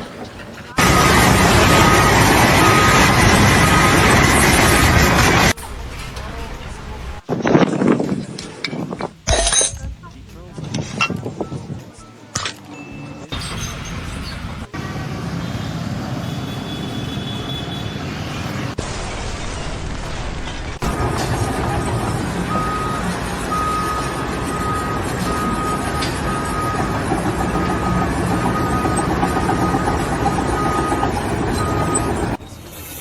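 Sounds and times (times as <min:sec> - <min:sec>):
heavy vehicle engine running: 0:00.0 - 0:07.3, 0:13.2 - 0:33.0
reversing alarm beeping: 0:00.8 - 0:05.5, 0:20.8 - 0:32.6.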